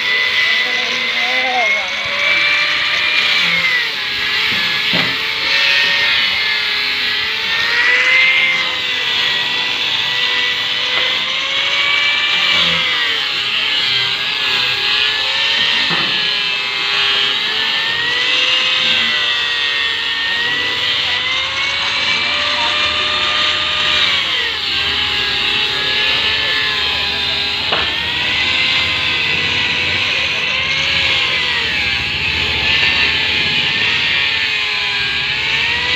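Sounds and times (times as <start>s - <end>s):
electric grinder whining: 0.0s - 35.9s
sharp knocks: 4.5s - 5.2s.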